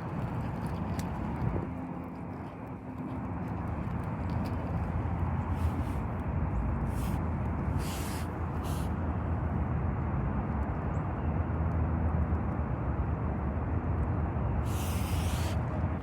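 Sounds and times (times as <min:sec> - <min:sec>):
short hissing sounds: 0:07.8 - 0:08.9, 0:14.6 - 0:15.7.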